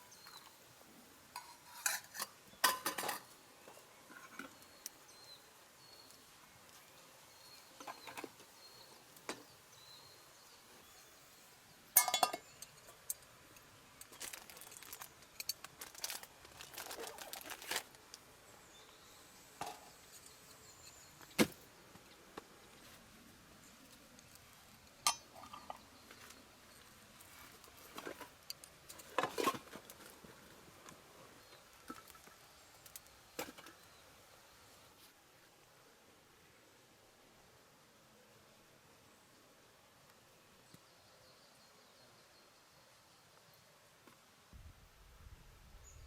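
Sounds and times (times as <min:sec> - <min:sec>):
metal utensils clinking on cookware: 0:01.4 - 0:03.3, 0:12.0 - 0:13.2, 0:25.0 - 0:25.8.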